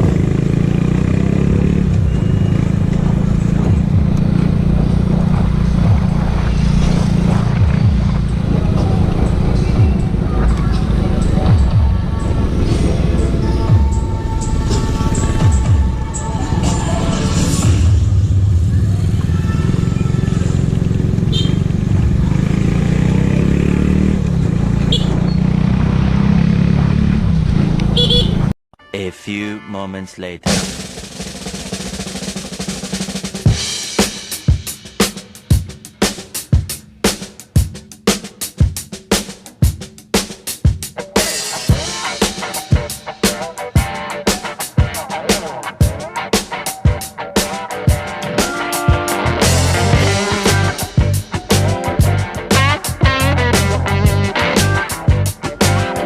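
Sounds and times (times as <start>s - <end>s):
motorcycle engine running: 0.0s - 28.5s, 48.9s - 56.0s.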